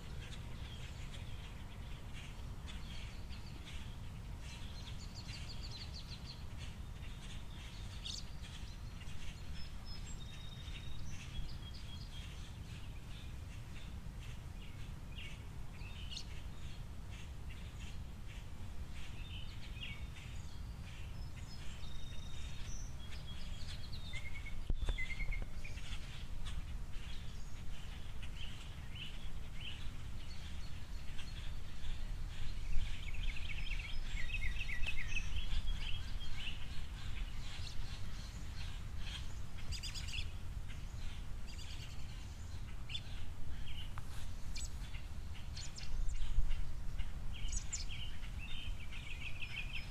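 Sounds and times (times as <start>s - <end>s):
songbirds chirping and twittering: 0.0s - 49.9s.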